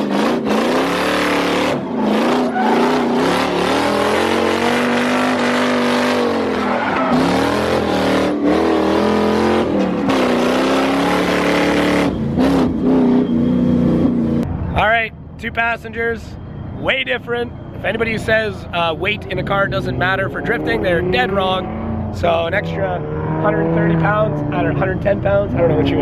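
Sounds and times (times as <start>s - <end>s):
car engine revving: 0.0s - 14.6s, 18.1s - 26.0s
tyre squeal: 1.0s - 8.2s.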